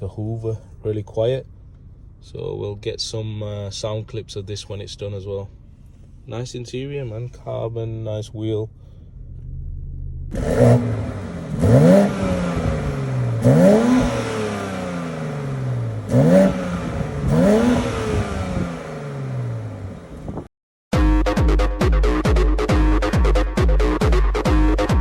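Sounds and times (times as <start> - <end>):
car engine revving: 8.7 - 20.5.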